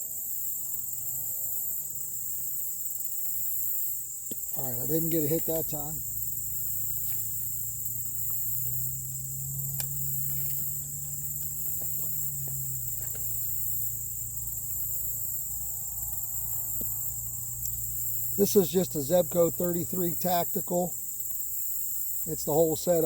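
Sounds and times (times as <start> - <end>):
insects buzzing: 0.0 - 23.0
low hum: 4.4 - 19.9.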